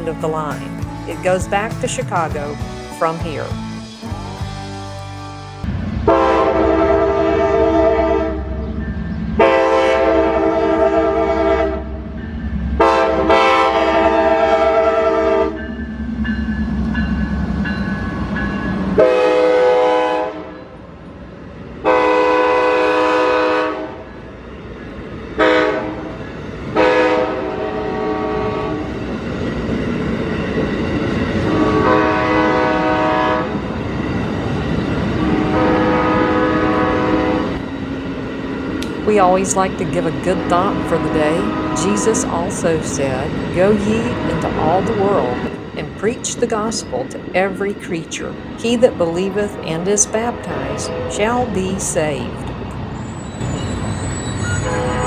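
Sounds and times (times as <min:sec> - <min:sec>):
low rumble of moving train: 0:00.0 - 0:04.8, 0:05.6 - 0:55.0
train air horn blasts: 0:06.0 - 0:08.5, 0:09.4 - 0:12.0, 0:12.8 - 0:15.6, 0:19.0 - 0:20.6, 0:21.8 - 0:24.1, 0:25.4 - 0:28.9, 0:31.4 - 0:33.6, 0:35.2 - 0:37.7, 0:40.4 - 0:42.4, 0:49.1 - 0:51.9, 0:54.4 - 0:55.0.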